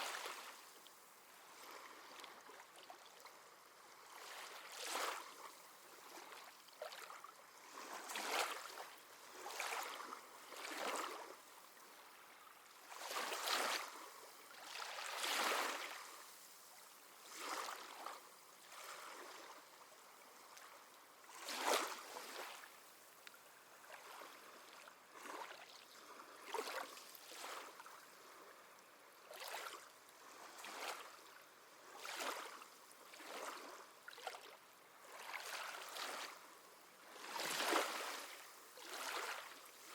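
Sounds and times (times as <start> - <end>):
small waves lapping at shore: 0.0 - 39.9.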